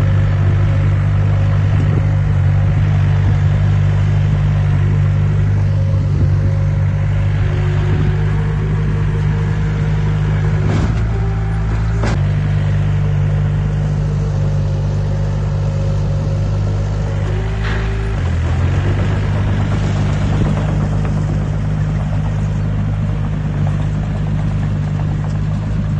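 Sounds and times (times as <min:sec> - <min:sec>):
heavy diesel engine running: 0:00.0 - 0:25.9.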